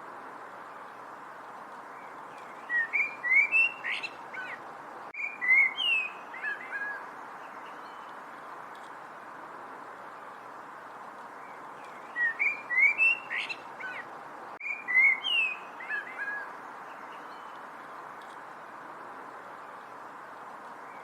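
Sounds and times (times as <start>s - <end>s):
steady background hiss: 0.0s - 21.0s
songbird singing: 0.4s - 21.0s.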